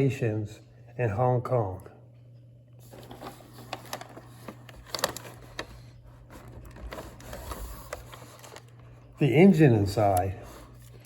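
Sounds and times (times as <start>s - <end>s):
steady low hum: 0.0s - 11.0s
handling clicks and rustles: 2.8s - 11.0s.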